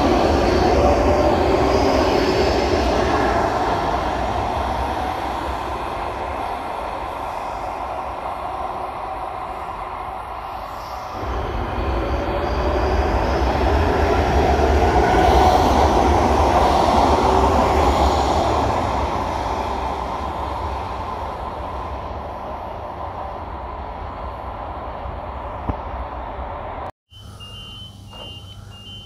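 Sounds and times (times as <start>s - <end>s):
faint high whine: 0.0s - 14.1s, 27.1s - 29.0s
electric train rumbling: 0.0s - 29.0s.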